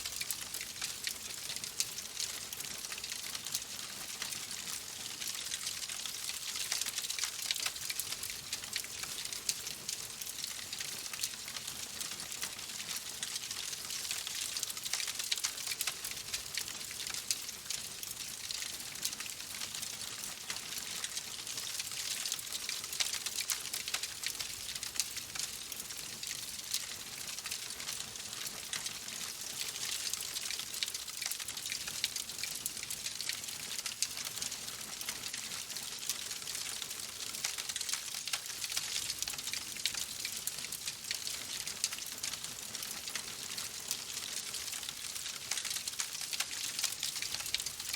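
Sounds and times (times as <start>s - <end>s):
fire crackling and popping: 32.6s - 47.9s.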